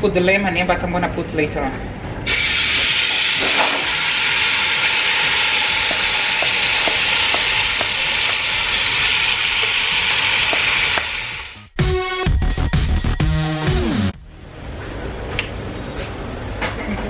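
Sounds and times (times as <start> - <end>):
chicken sizzling in oil: 2.3 - 11.6.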